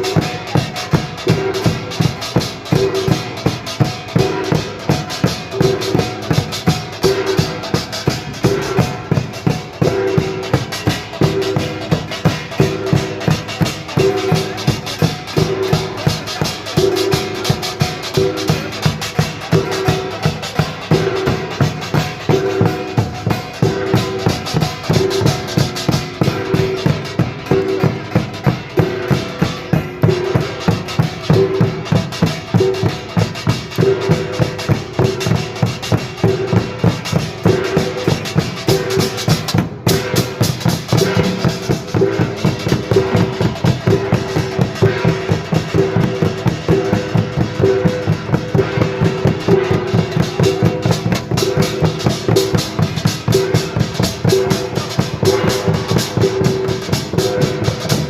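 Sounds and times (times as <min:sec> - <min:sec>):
percussion ensemble of drums and gongs: 0:00.0 - 0:58.0.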